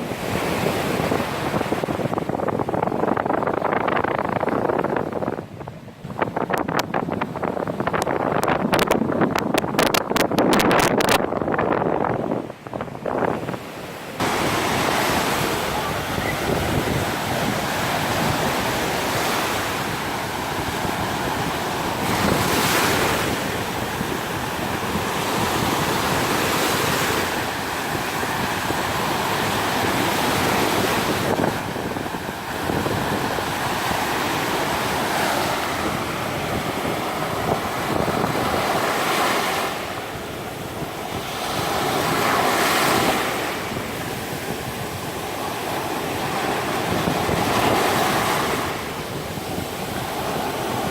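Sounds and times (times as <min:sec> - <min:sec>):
wind on microphone: 0:00.0 - 0:50.9
surf breaking on beach: 0:06.1 - 0:50.9.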